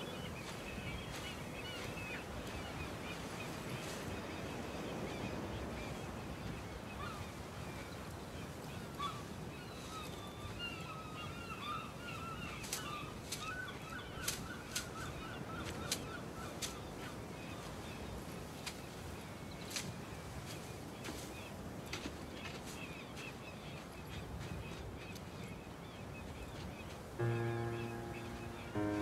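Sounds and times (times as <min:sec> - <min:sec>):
birds chirping: 0:27.2 - 0:29.0.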